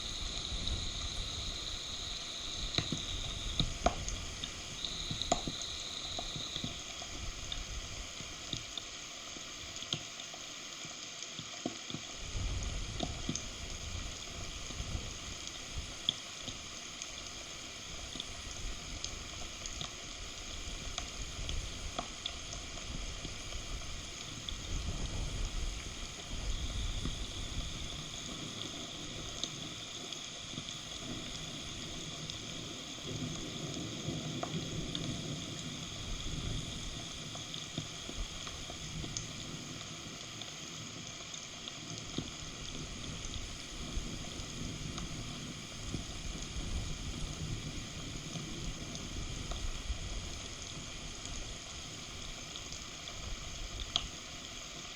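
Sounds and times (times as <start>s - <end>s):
water drips: 0.0s - 24.8s
rain falling: 0.0s - 54.9s.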